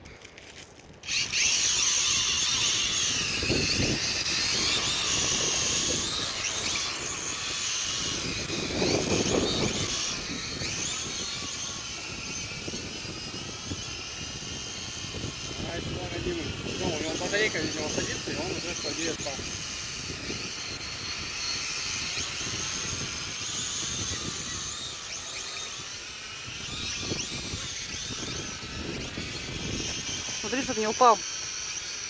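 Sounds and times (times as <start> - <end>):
toy drone propellers whining: 0.0 - 32.0
wind rumbling on microphone: 0.8 - 31.6.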